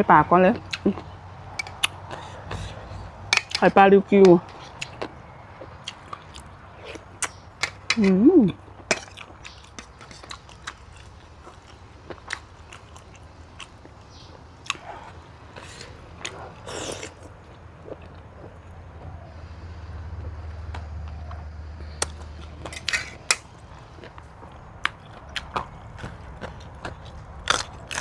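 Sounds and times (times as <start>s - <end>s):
person chewing with crunches: 9.0s - 18.5s, 23.9s - 28.0s.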